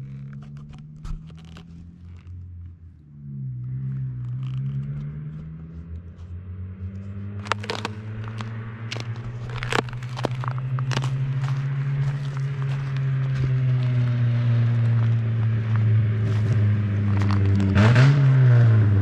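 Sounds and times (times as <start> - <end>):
car engine drone: 0.0 - 19.0
exhaust pops and crackles: 0.0 - 19.0.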